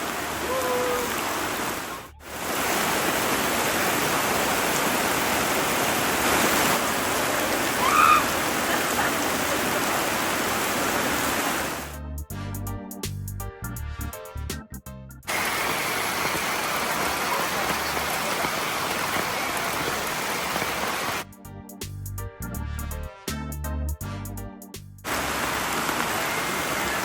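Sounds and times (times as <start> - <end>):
rain falling: 0.0 - 12.0, 15.3 - 21.2, 25.0 - 27.0
music: 11.8 - 15.3, 21.2 - 25.1.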